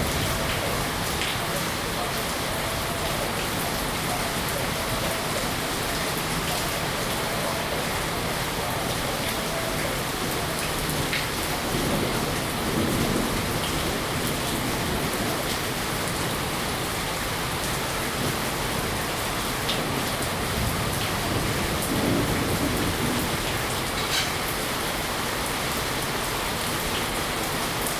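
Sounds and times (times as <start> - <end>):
steady rain falling: 0.0 - 27.9.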